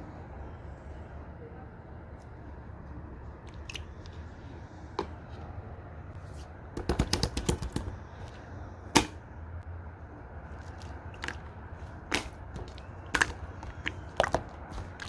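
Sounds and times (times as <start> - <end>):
slime squishing by hand: 10.1 - 15.0
slime air pockets popping: 12.0 - 15.0.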